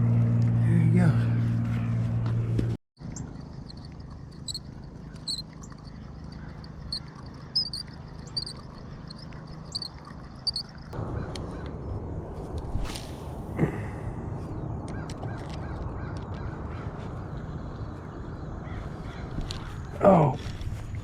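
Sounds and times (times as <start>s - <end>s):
steady low hum: 0.0s - 14.9s
crickets chirping: 3.0s - 11.0s.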